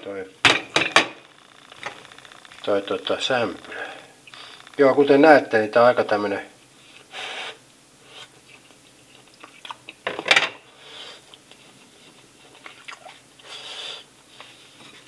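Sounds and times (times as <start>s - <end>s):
person chewing: 8.4s - 10.0s.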